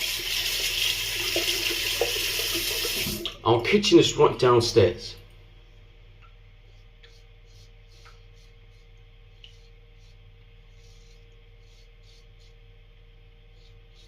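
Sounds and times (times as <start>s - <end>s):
steady low hum: 3.2s - 14.0s.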